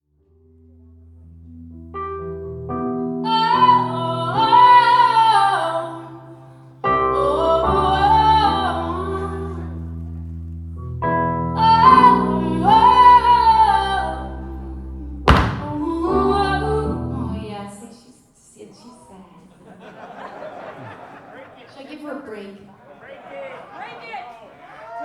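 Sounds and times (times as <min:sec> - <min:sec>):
woman singing: 0:03.2 - 0:09.8, 0:11.6 - 0:19.1.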